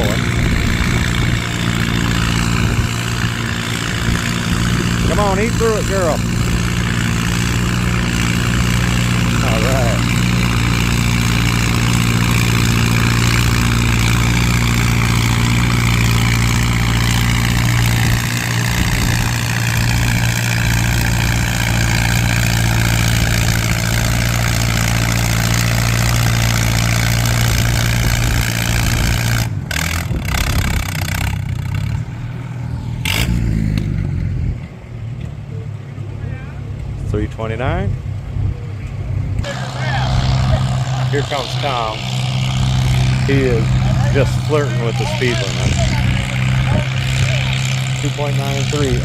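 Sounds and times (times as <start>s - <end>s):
tractor engine under load: 0.0s - 35.5s, 38.8s - 49.0s.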